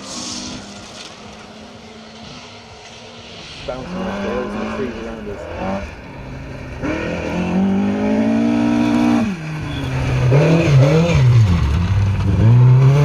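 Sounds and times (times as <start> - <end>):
rally car engine at full throttle: 0.0 - 13.0.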